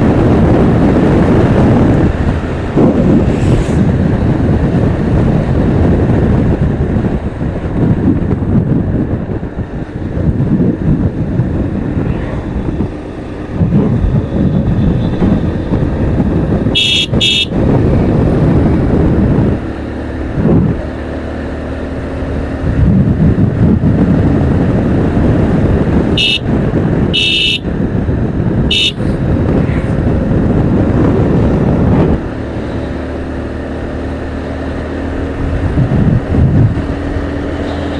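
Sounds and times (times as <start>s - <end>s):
motorcycle riding rumble: 0.0s - 37.9s
vehicle horn toots: 16.7s - 17.6s, 26.2s - 27.7s, 28.7s - 29.1s.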